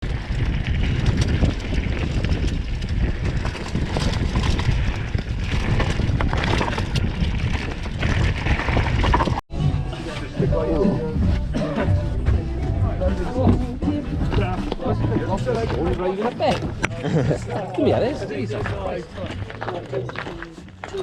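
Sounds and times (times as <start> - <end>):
bike rattling over bumps: 0.0 - 9.4
wind buffeting microphone: 0.0 - 9.4
tyres rumbling on dirt and stones: 0.0 - 21.0.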